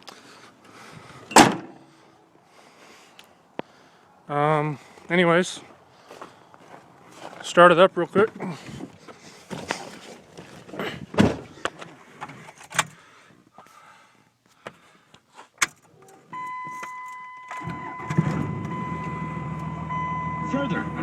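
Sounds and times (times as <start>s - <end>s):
keys clicking and knocking: 15.6s - 17.6s
diesel engine cranking and idling: 15.8s - 21.0s.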